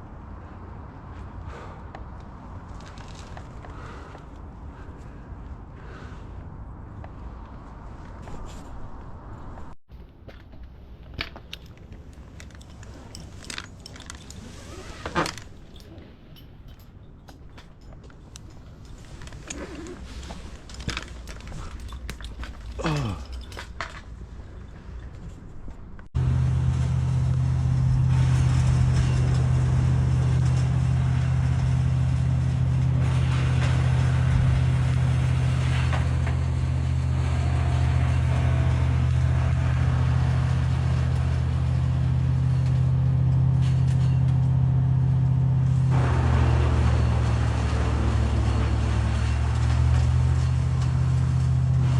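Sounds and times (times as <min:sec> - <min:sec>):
engine droning steadily: 0:00.0 - 0:51.9
light metallic clinks: 0:11.4 - 0:25.6.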